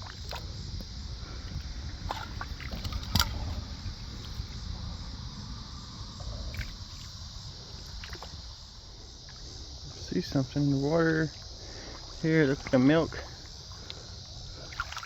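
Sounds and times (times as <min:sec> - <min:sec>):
footsteps in shallow water and mud: 0:00.0 - 0:04.6, 0:06.4 - 0:09.6, 0:10.2 - 0:15.0
low rumbling handling noise: 0:00.0 - 0:09.5
insects buzzing: 0:00.0 - 0:15.0.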